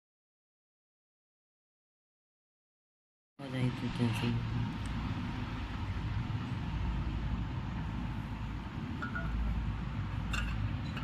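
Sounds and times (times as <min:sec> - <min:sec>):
steady low rumble: 0:03.4 - 0:11.0.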